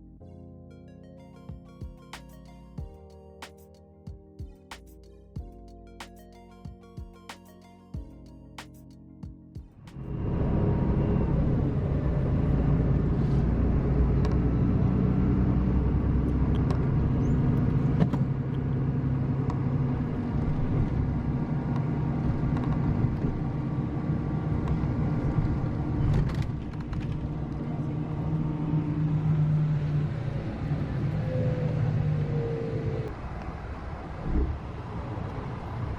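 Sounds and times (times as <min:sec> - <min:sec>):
bus engine humming: 0:09.8 - 0:35.9.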